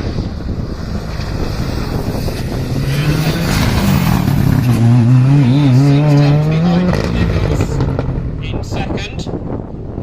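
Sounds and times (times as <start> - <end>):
wind buffeting microphone: 0.0 - 10.0
rally car engine accelerating: 0.5 - 8.4.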